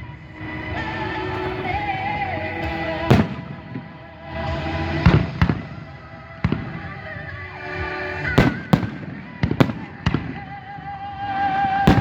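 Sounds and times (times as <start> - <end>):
fireworks rumble and crackle: 0.0 - 12.0
fireworks bangs: 0.7 - 12.0.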